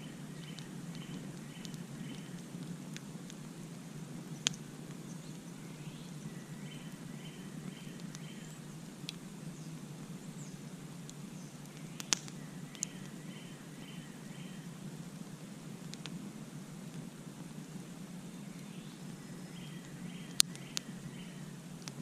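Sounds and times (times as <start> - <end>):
campfire burning: 0.0 - 22.0
fire crackling pops: 0.0 - 22.0.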